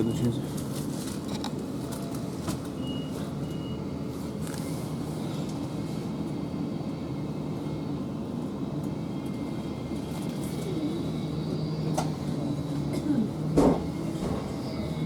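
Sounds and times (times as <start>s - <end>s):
electric train hum with tones: 0.0s - 15.0s.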